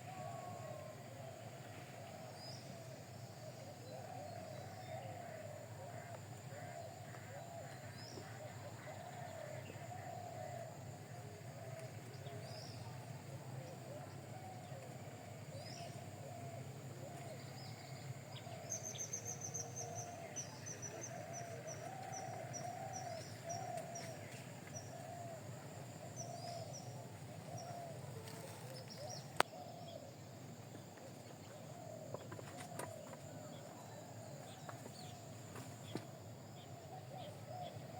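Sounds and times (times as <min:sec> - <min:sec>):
birds calling and chirping: 0:11.8 - 0:37.9.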